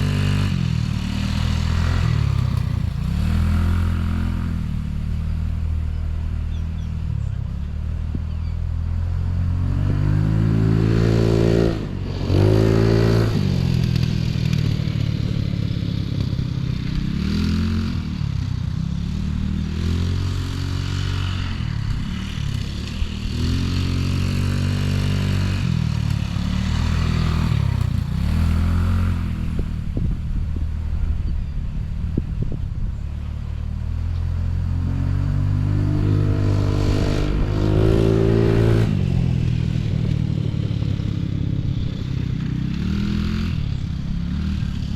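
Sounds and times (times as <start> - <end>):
off-road vehicle engine revving: 0.0 - 44.9.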